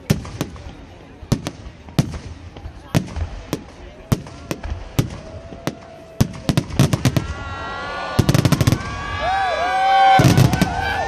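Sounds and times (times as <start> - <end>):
crackling firework volleys: 0.0 - 11.0
firework bangs: 0.0 - 11.0
whistling fireworks: 0.0 - 11.0.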